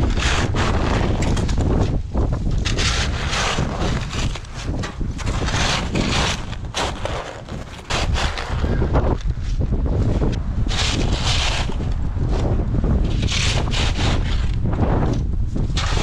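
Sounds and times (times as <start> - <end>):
wind buffeting microphone: 0.0 - 16.0
scuffing and crunching: 3.9 - 10.3.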